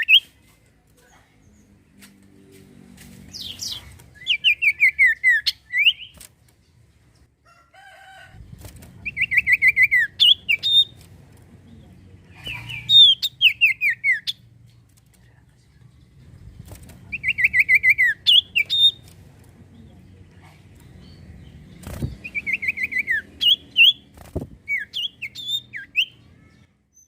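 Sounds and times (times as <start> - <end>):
bird singing whistled notes: 22.0 - 24.0, 24.7 - 26.2.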